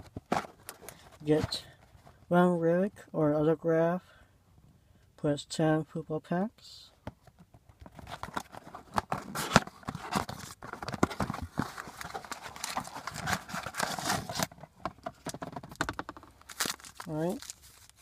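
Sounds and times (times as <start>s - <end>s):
wrapping and cardboard tearing: 8.2s - 18.0s.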